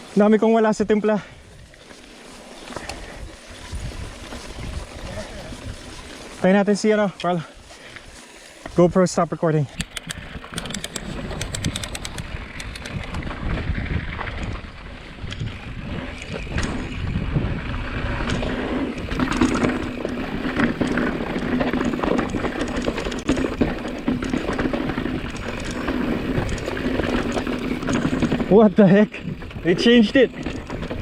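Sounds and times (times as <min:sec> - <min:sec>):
wind buffeting microphone: 0:02.8 - 0:06.4, 0:09.8 - 0:31.0
tyres rumbling on dirt: 0:10.6 - 0:31.0.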